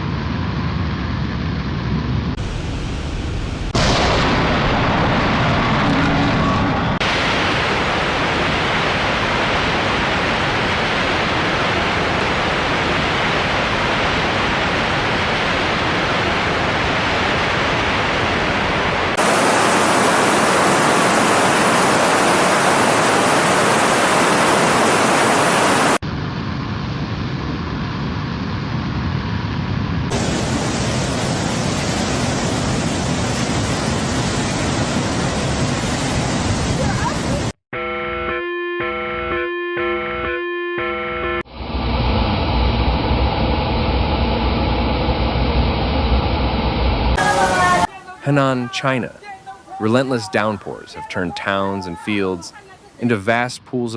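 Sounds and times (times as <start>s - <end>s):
rushing floodwater: 7.0s - 26.0s, 30.1s - 37.5s, 47.2s - 53.5s.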